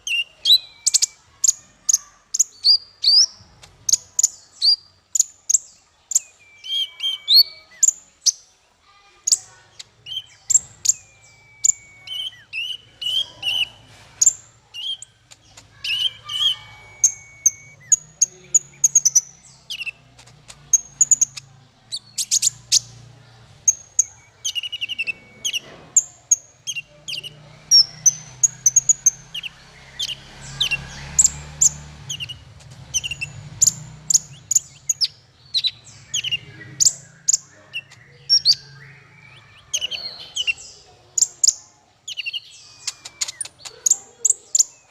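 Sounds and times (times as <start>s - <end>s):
songbird singing: 0.0s - 44.9s
short held whistle: 11.0s - 12.8s, 15.9s - 17.9s.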